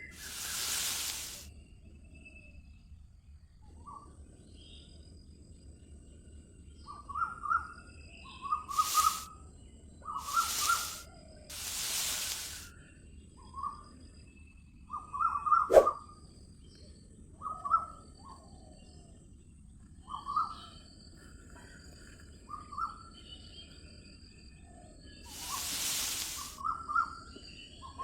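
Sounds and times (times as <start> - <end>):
birds chirping: 0.0 - 1.4, 10.2 - 12.7, 25.2 - 26.6
bursts of hiss: 0.0 - 1.5, 8.7 - 9.3, 10.2 - 12.7, 25.3 - 26.6.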